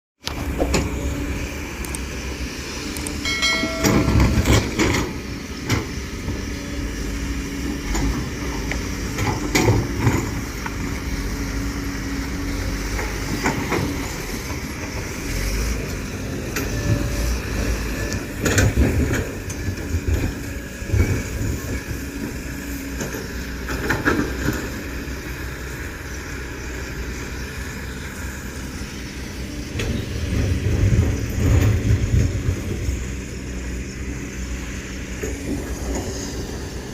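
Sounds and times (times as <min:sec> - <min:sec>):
diesel engine running under load: 0:00.2 - 0:36.9
excavator bucket clanks and knocks: 0:03.3 - 0:06.0.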